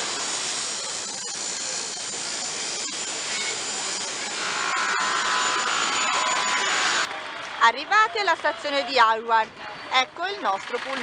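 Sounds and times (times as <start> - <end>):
high-pitched tone: 1.0 - 7.1.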